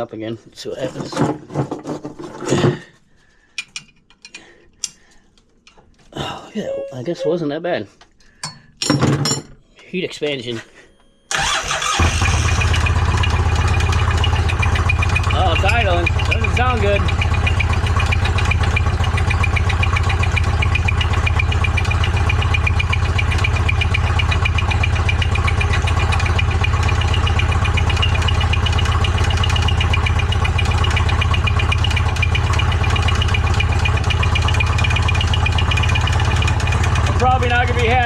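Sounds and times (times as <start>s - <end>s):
engine idling: 11.3s - 38.0s
engine rattling knock: 12.6s - 38.0s.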